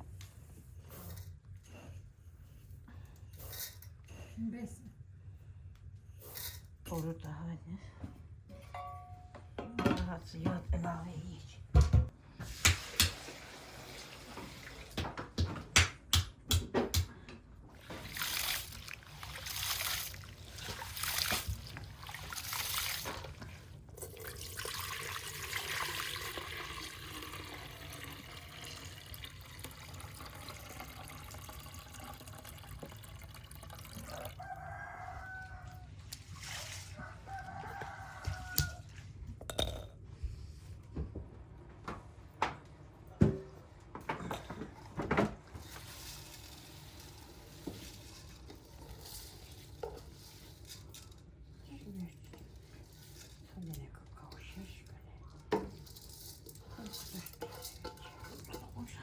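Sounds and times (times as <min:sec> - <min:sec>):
rooster crowing: 0:34.0 - 0:35.9, 0:36.9 - 0:39.0.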